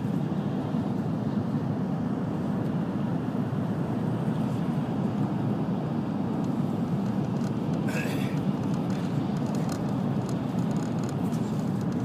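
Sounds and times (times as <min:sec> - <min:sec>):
train rumble and air rush: 0:00.0 - 0:12.0.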